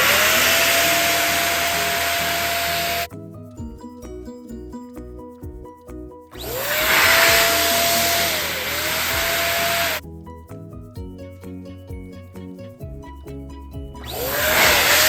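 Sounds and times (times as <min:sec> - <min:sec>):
electric balloon pump whine: 0:00.0 - 0:03.1, 0:06.4 - 0:10.0, 0:14.0 - 0:15.0
background music with beat: 0:00.0 - 0:15.0.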